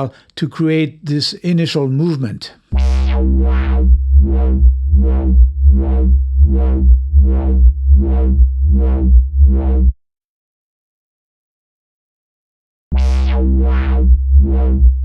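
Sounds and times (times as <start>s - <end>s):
synth bass note with wah pulse: 2.7s - 10.0s, 12.9s - 15.0s.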